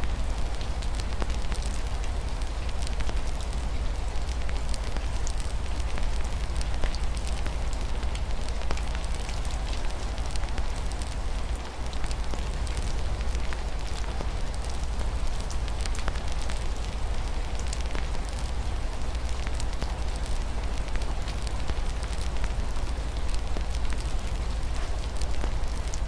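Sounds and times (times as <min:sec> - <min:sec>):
rain on a window: 0:00.0 - 0:26.0
wood fire crackling: 0:00.0 - 0:26.0.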